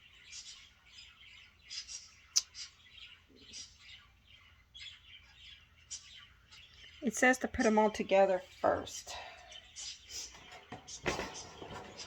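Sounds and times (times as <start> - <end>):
wire cage panels rustling: 10.1 - 12.0.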